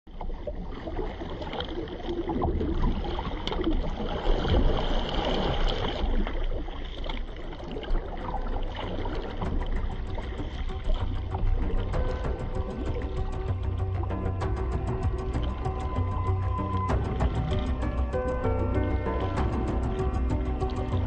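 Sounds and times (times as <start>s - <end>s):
water splashing around kayak: 0.1s - 21.0s
low rumble: 6.1s - 21.0s.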